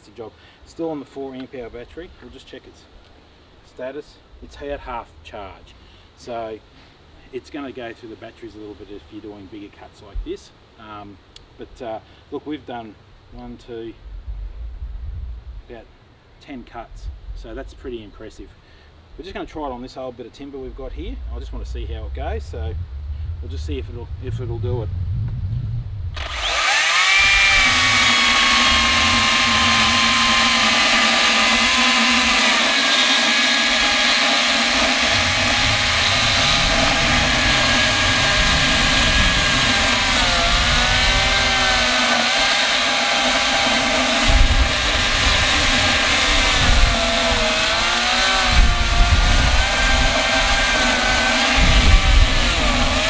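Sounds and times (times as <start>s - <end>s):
chainsaw cutting hard timber: 26.2s - 53.0s.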